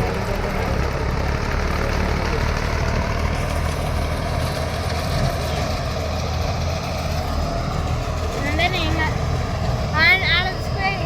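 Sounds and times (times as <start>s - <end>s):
combine harvester engine running: 0.0s - 11.0s.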